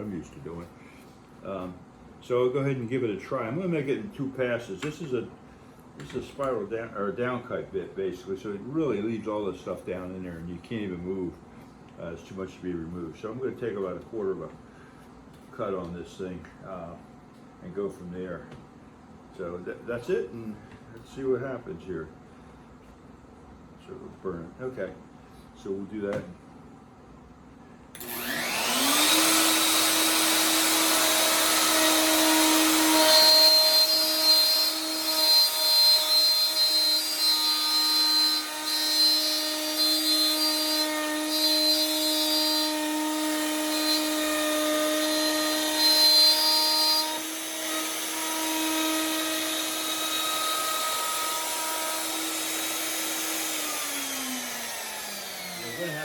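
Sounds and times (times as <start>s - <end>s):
router cutting wood: 28.0s - 56.0s
router spinning up and down: 28.0s - 56.0s.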